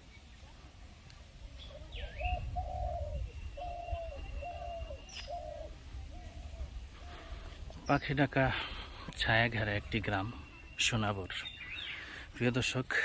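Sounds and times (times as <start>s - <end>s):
dove cooing: 1.6s - 7.6s.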